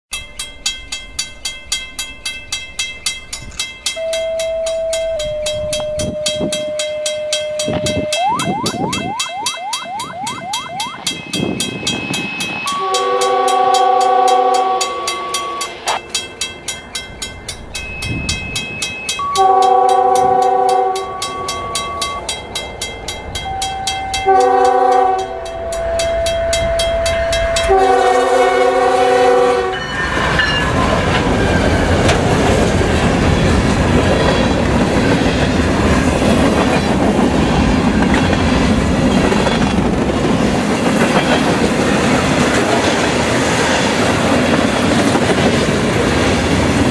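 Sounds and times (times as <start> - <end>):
crossing bell ringing: 0.1 - 46.9
locomotive air horn: 12.6 - 16.0, 19.2 - 21.4, 23.8 - 29.9.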